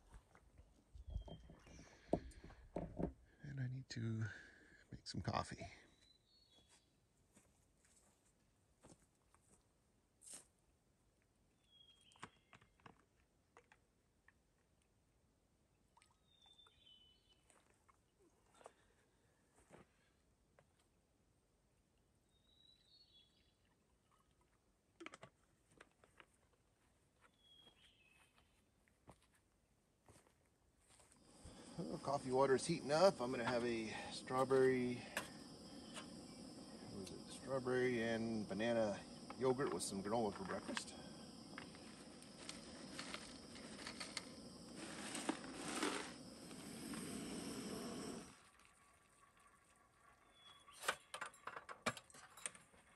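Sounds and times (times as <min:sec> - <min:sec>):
faint high bird chirps: 0:01.0 - 0:01.9, 0:05.8 - 0:06.9, 0:11.6 - 0:12.7, 0:16.1 - 0:17.5, 0:22.2 - 0:24.3, 0:27.3 - 0:28.6, 0:50.1 - 0:51.2.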